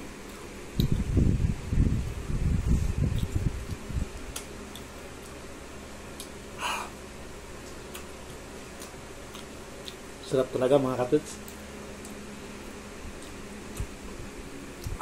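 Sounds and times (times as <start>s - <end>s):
steady low hum: 0.0s - 15.0s
man chewing: 3.0s - 7.0s, 7.6s - 10.2s, 11.4s - 14.0s.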